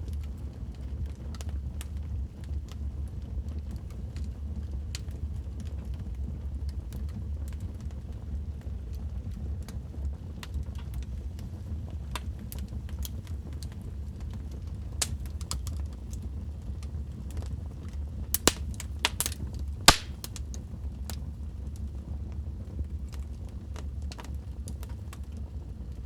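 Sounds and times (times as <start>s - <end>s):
wood fire crackling and popping: 0.1s - 26.0s.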